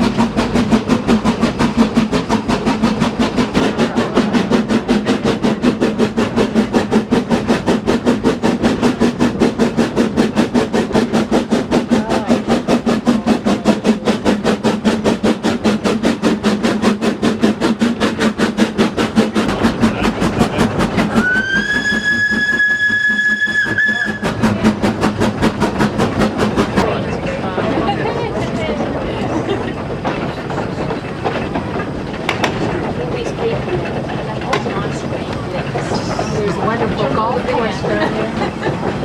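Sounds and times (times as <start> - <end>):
steam locomotive exhaust beating: 0.0 - 39.0
steam whistle blast: 21.1 - 24.4.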